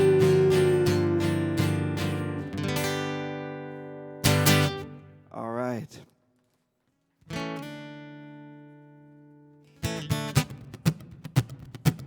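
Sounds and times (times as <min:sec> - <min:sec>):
acoustic guitar strumming: 0:00.0 - 0:05.2, 0:09.7 - 0:12.0.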